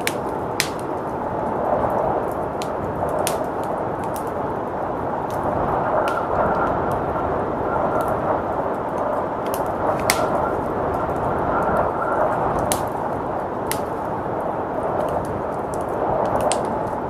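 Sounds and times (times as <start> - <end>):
rushing blizzard wind: 0.0 - 17.0
wood fire crackling: 0.0 - 17.0.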